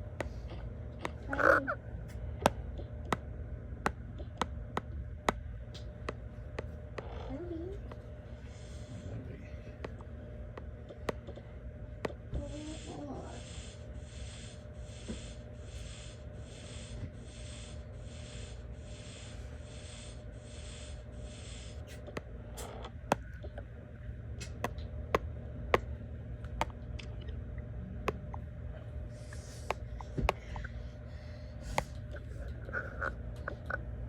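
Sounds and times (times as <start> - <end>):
low background hum: 0.0 - 34.0.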